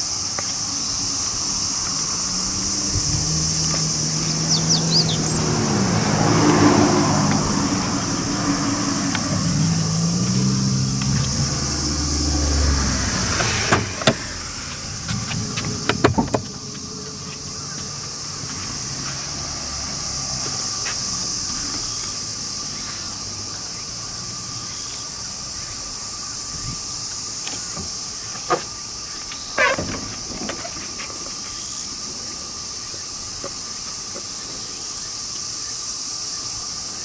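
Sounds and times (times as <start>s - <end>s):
car engine hum: 0.0s - 37.0s
thin constant whine: 7.2s - 19.3s.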